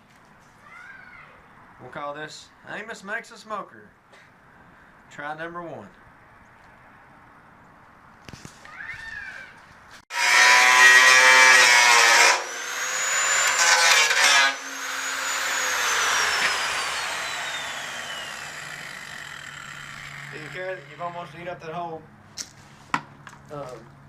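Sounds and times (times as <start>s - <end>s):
angle grinder cutting steel: 10.1s - 21.6s
grinder disc winding down: 11.4s - 21.4s.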